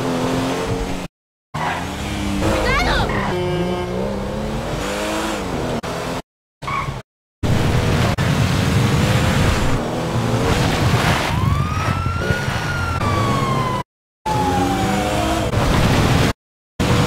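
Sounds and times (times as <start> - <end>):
car engine: 0.0 - 11.0.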